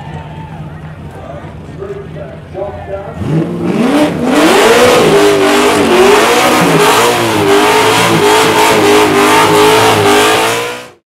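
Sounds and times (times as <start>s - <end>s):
supercharged engine revving: 3.2s - 11.0s.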